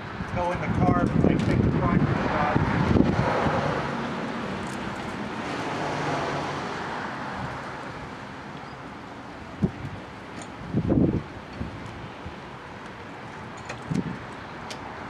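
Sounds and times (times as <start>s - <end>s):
passing road vehicle rushing: 1.5s - 9.1s.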